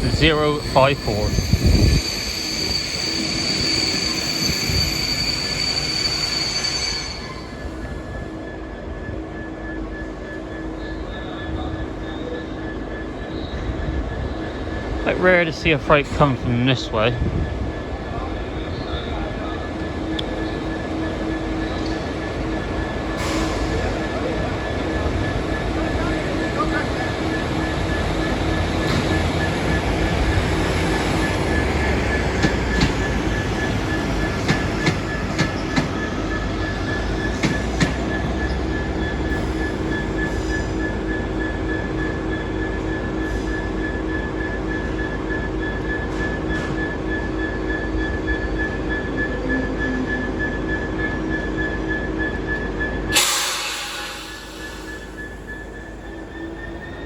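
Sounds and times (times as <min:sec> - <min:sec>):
diesel locomotive rumble: 0:00.0 - 0:09.4, 0:10.1 - 0:57.0
high-pitched whine: 0:51.3 - 0:57.0.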